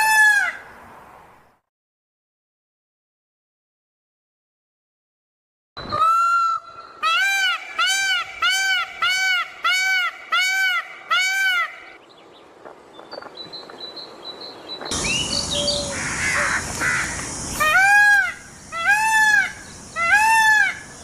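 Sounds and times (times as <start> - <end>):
peacock calling: 5.8 - 12.0, 14.9 - 21.0
steady hiss: 14.9 - 21.0.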